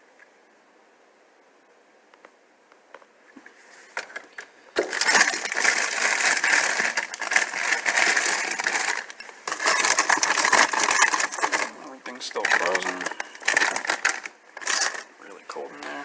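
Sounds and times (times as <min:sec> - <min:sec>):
crackling and rattling of handling: 0:02.2 - 0:16.0.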